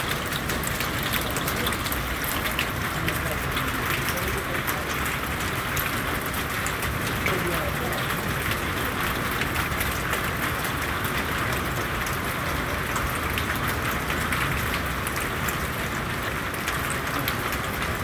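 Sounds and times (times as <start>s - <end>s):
raindrops ticking on surfaces: 0.0s - 18.0s.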